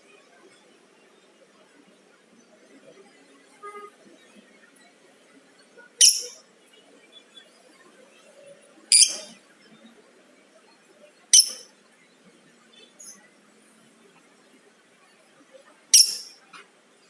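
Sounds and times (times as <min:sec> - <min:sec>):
lovebird high-pitched calls: 0:06.0 - 0:06.4, 0:08.9 - 0:09.4, 0:11.3 - 0:11.7, 0:15.9 - 0:16.4.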